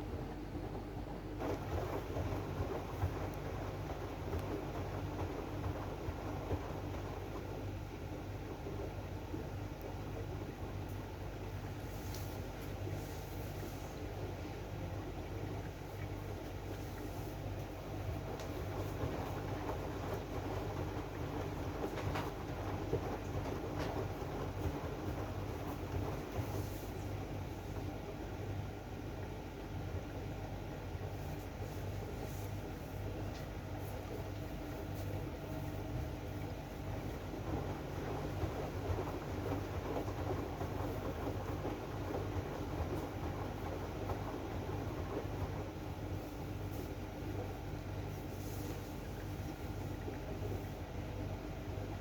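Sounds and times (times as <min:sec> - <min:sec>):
washing machine hum and rumble: 0:00.0 - 0:52.0
faint swishes of water: 0:30.9 - 0:50.9.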